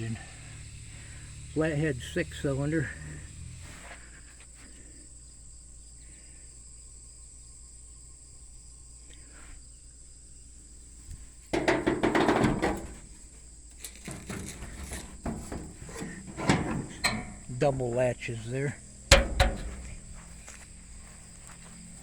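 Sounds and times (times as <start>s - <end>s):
high insect chirring: 0.0s - 3.7s
light knocks and clicks: 19.1s - 20.7s.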